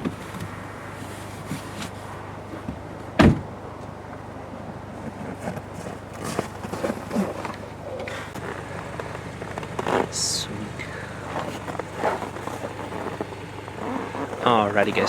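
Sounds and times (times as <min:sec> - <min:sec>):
steady low hum: 0:00.0 - 0:15.0
heavy thump: 0:03.2 - 0:03.5.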